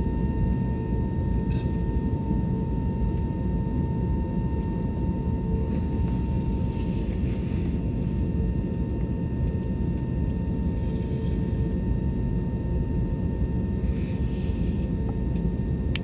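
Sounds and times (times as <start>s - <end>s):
faint high whine: 0.0s - 11.8s
jet engine drone in cabin: 0.0s - 16.0s.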